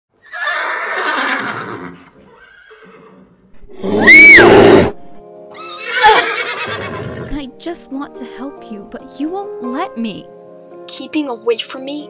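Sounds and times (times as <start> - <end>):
horse whinnying: 0.2 - 7.4.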